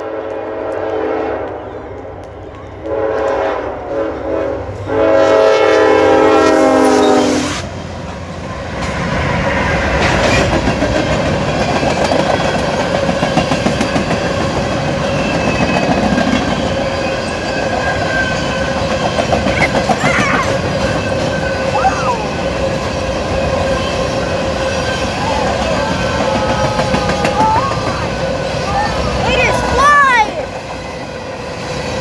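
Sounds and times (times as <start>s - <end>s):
train air horn blast: 0.0s - 1.6s, 2.8s - 7.8s
train rumbling and clattering past: 0.0s - 32.0s
wheels clicking over rail joints: 9.9s - 30.8s.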